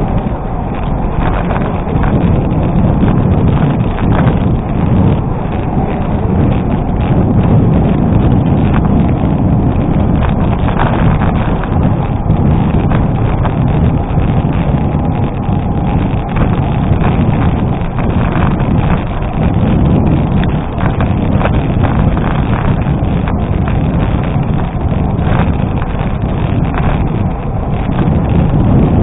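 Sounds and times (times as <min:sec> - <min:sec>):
bicycle tyres crunching on gravel: 0:00.0 - 0:29.0
wind buffeting microphone: 0:00.0 - 0:29.0.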